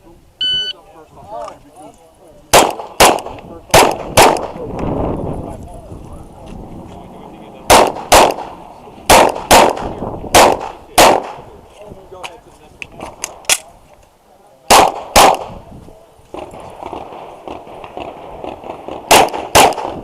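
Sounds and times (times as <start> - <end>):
pistol shots: 2.5 - 4.7, 7.7 - 11.4, 14.7 - 15.6, 16.4 - 20.0.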